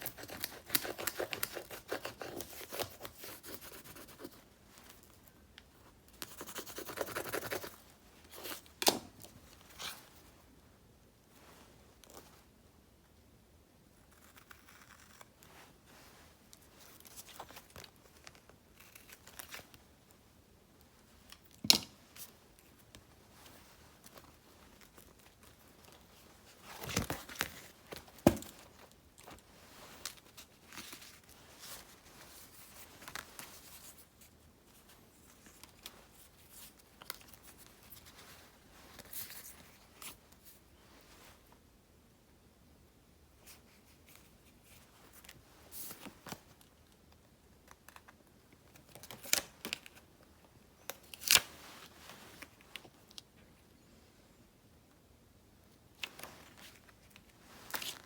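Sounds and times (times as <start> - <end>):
stickers being peeled: 0.0 - 4.4
paper rustling and crinkling: 21.2 - 41.3, 50.8 - 53.1, 56.0 - 58.0.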